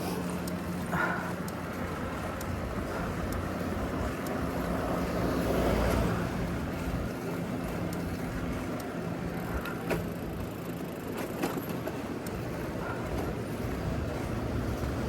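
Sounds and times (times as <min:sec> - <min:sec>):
city street traffic hum: 0:00.0 - 0:15.0.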